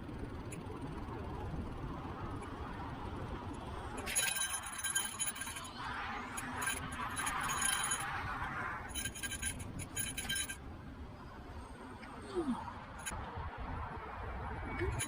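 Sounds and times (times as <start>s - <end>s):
metallic clinking and rattling: 4.0s - 10.6s, 13.0s - 13.2s.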